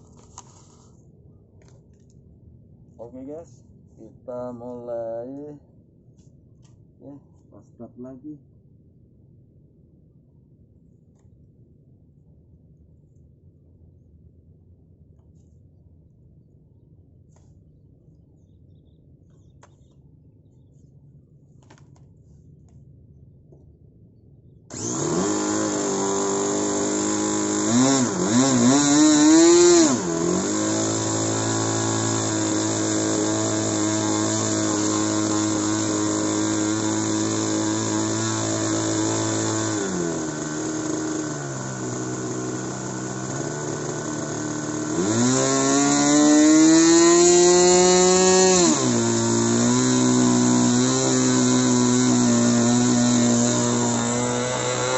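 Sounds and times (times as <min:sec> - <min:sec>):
model airplane engine revving: 0:24.7 - 0:54.9.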